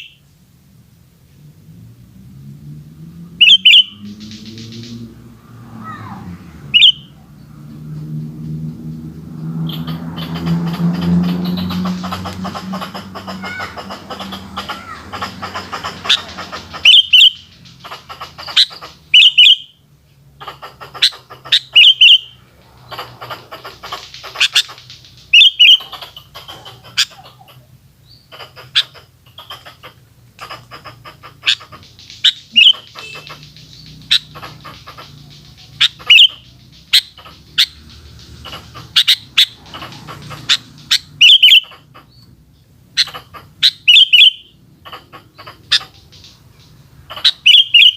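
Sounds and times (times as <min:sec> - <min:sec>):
sharp bird tweets: 0:00.0 - 0:00.2, 0:03.4 - 0:05.3, 0:06.7 - 0:19.8, 0:21.0 - 0:23.2, 0:23.8 - 0:27.4, 0:31.4 - 0:47.9
bird chirping: 0:00.0 - 0:00.3, 0:03.1 - 0:47.9.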